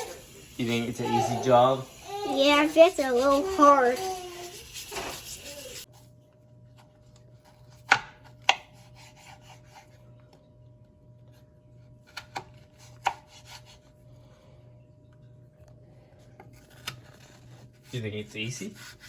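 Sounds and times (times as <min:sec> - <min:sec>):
faint knife scraping: 0:02.0 - 0:06.0.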